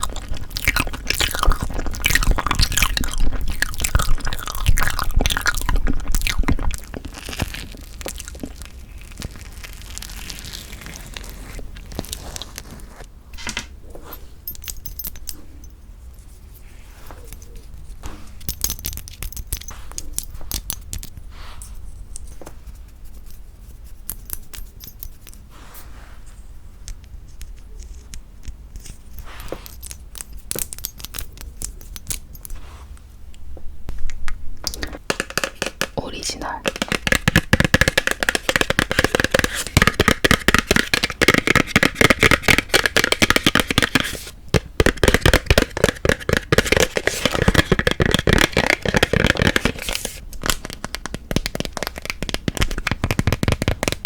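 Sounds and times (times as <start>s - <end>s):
clicks taps and scrapes: 0.0s - 8.7s, 33.9s - 54.0s
close-miked eating crackling: 0.0s - 13.1s.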